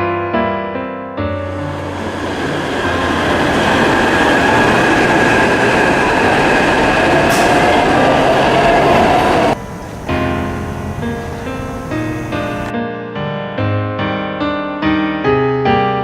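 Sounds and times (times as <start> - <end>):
high whine: 1.4 - 12.7
train rumbling and rattling on rails: 1.4 - 12.7.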